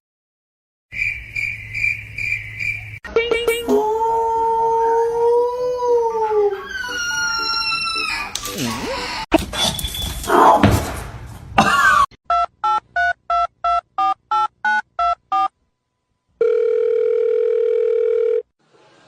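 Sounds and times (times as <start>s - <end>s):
telephone line tone: 16.4s - 18.5s.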